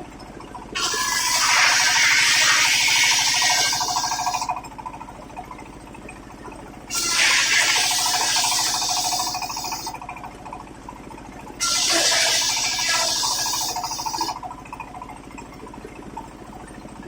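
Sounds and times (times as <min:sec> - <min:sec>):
saw blade droning: 0:00.8 - 0:04.5, 0:06.9 - 0:10.0, 0:11.6 - 0:14.4
saw cutting wood: 0:00.8 - 0:04.5, 0:06.9 - 0:10.0, 0:11.6 - 0:14.4.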